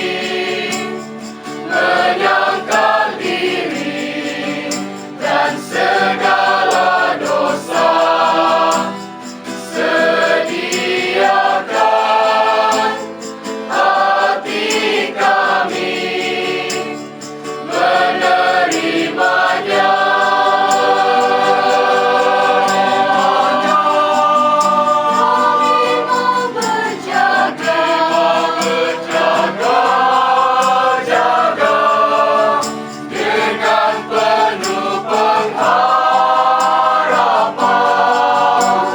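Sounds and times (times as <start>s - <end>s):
voices singing in harmony: 0.0s - 38.9s.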